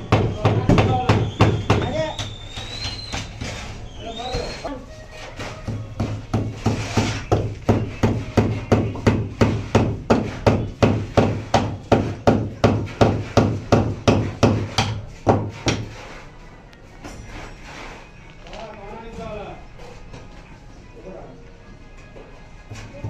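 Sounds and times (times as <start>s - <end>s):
hammer striking: 0.1s - 3.2s.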